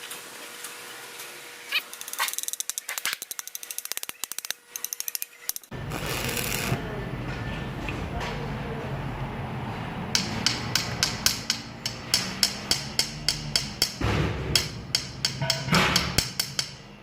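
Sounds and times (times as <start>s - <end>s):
hammer tapping on metal: 10.1s - 16.8s.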